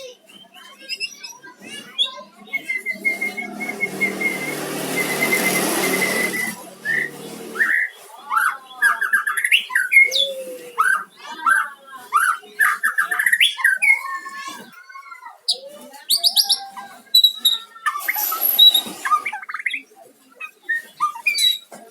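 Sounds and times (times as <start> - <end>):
bird singing whistles and chirps: 2.0 - 14.1
broad rushing noise: 2.8 - 8.0.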